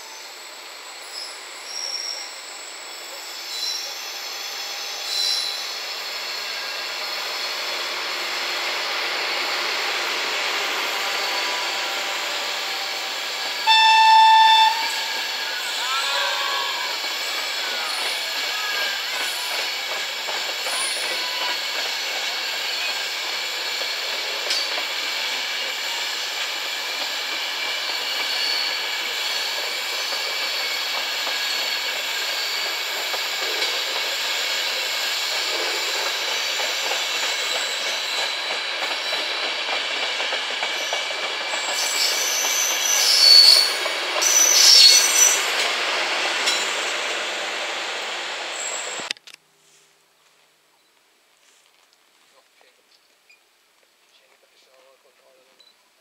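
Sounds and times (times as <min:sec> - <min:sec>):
metallic wheel squeal: 0:01.0 - 0:06.8, 0:27.9 - 0:32.8, 0:41.6 - 0:45.7
high-pitched wheel squeals: 0:01.0 - 0:06.9, 0:11.0 - 0:19.6, 0:41.6 - 0:45.7
train wheels clattering: 0:17.1 - 0:47.2.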